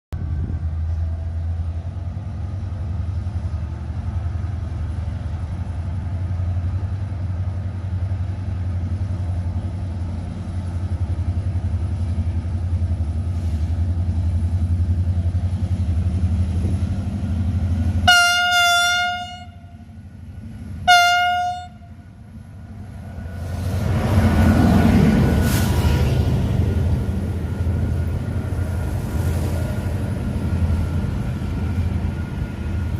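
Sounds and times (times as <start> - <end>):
locomotive engine drone: 0.2 - 32.9
locomotive horn blasts: 18.0 - 19.9, 20.8 - 22.0.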